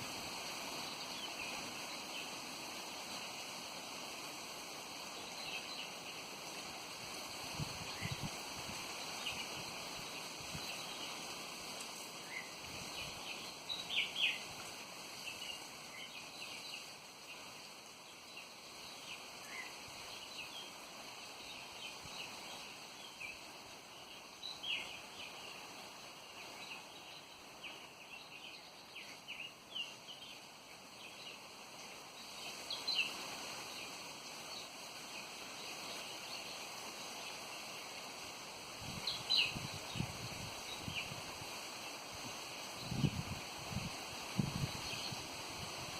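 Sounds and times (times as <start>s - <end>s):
small birds chirping: 0.0s - 45.9s
wind rushing: 42.8s - 45.9s.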